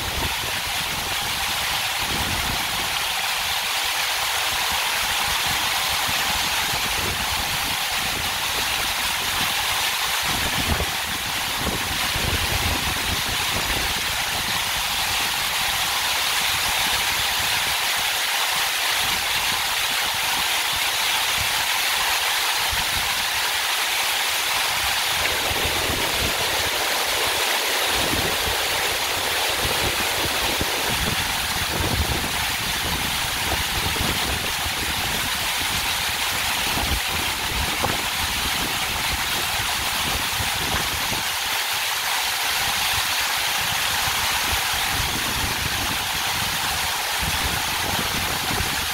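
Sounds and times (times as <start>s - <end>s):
waterfall rushing: 0.0s - 48.9s
low rumble of water: 24.4s - 41.4s.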